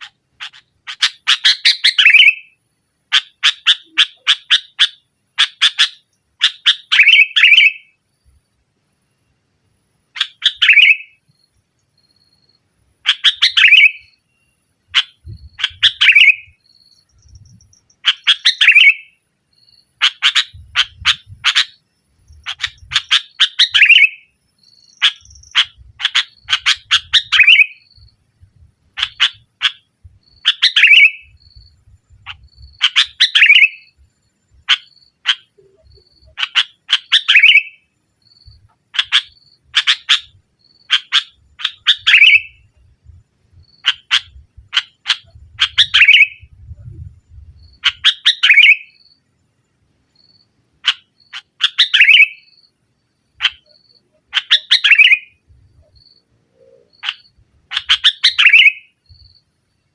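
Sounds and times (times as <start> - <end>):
bulbul chattering song: 0.0 - 8.0, 10.1 - 11.3, 13.0 - 49.2, 50.8 - 59.5.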